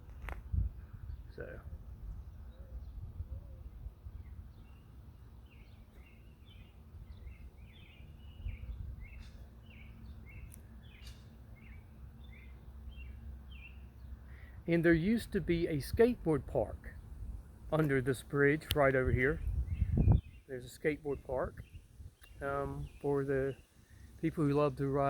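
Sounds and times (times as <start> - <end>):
small bird chirping: 4.2 - 14.4, 18.6 - 24.8.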